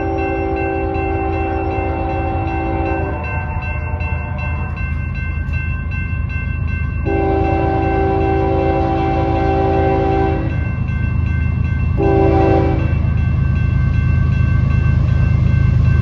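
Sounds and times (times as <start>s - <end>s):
train air horn blasts: 0.0s - 4.7s, 7.1s - 10.6s, 12.0s - 13.0s
train rumble: 0.0s - 16.0s.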